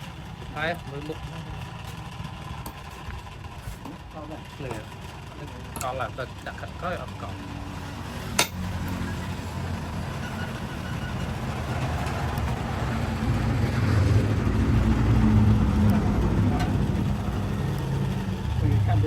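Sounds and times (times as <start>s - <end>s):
engine low rumble: 0.0s - 19.0s.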